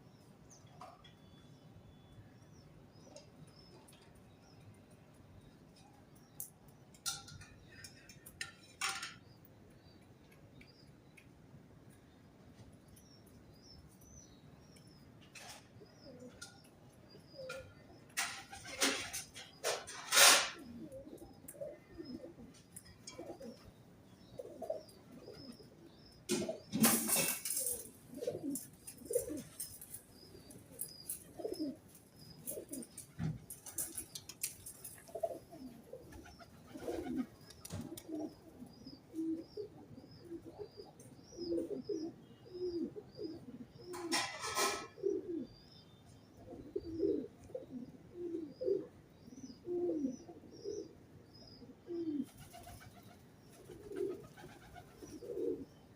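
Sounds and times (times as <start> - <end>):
pigeons cooing: 15.4 - 45.6, 46.4 - 55.9
small bird chirping: 20.6 - 26.8, 27.6 - 44.0, 45.1 - 55.9.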